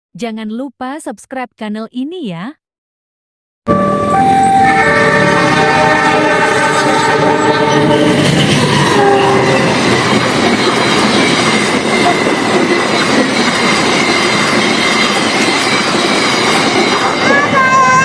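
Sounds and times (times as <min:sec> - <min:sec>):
train passing at speed: 0:03.7 - 0:18.0.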